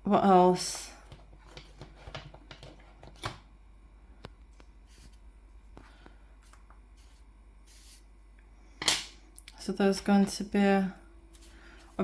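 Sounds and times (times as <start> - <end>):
drawing supplies tapping and clicking: 1.1 - 3.4.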